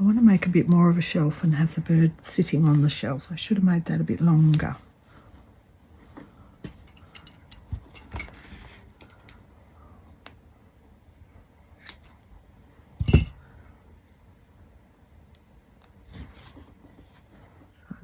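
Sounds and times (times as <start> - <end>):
craft tools clicking and tapping: 6.9 - 8.3, 13.0 - 13.4.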